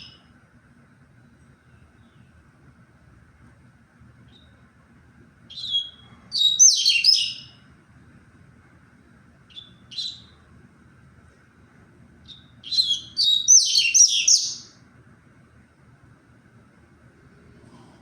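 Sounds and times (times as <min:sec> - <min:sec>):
bird singing whistled notes: 0:05.5 - 0:07.6, 0:09.5 - 0:10.4, 0:12.3 - 0:14.8.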